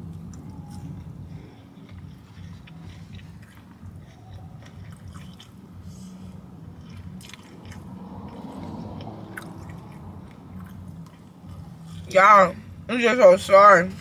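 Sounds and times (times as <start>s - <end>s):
person chewing: 0.0s - 12.1s
steady low hum: 0.0s - 14.0s.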